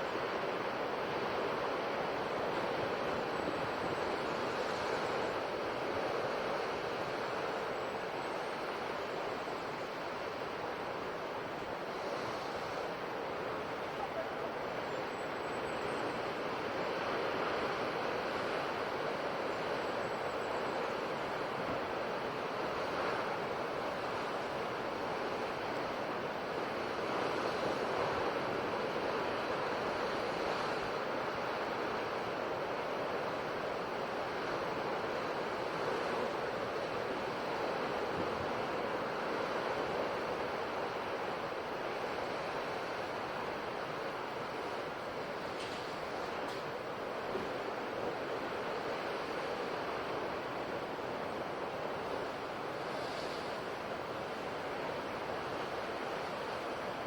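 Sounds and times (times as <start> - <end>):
ocean waves breaking: 20.8 - 57.0.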